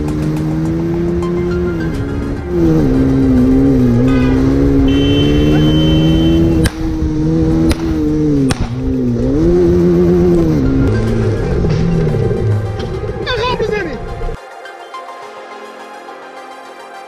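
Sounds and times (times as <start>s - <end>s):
motorcycle engines revving: 0.0s - 14.4s
sharp cracks: 7.6s - 8.9s.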